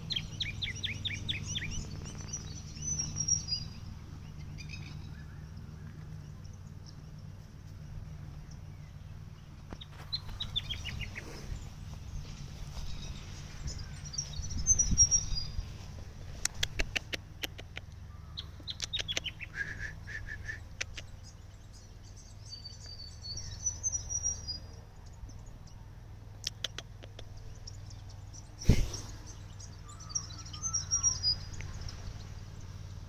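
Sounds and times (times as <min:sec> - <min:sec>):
low rumble: 0:00.0 - 0:18.8
small birds chirping: 0:00.0 - 0:33.0
sharp clicks: 0:16.4 - 0:18.0, 0:18.6 - 0:19.4, 0:20.7 - 0:21.1, 0:26.4 - 0:27.4.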